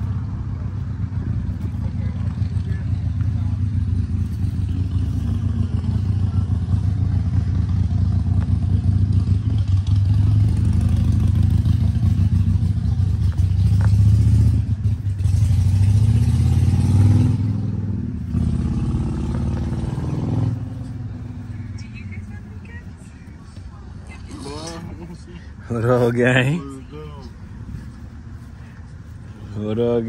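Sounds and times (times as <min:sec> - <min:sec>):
car engine revving: 0:00.0 - 0:22.7.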